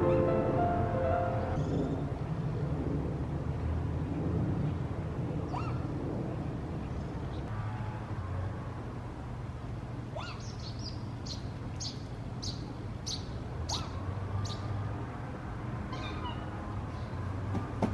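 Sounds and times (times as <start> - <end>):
low hum: 0.0 - 3.1.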